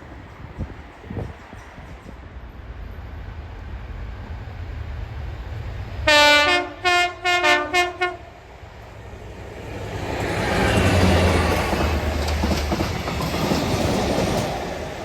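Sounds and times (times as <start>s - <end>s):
train rumbling: 0.0s - 15.0s
two-tone train horn blasts: 6.0s - 8.4s.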